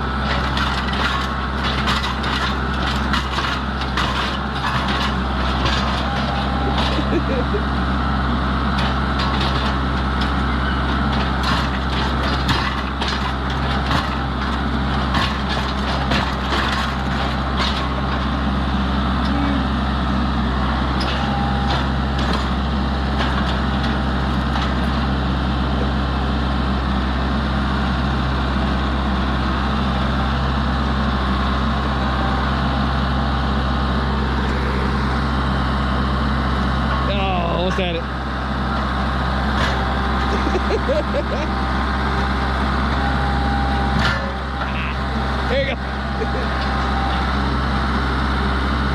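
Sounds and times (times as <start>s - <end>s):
engine running steadily: 0.0s - 48.9s.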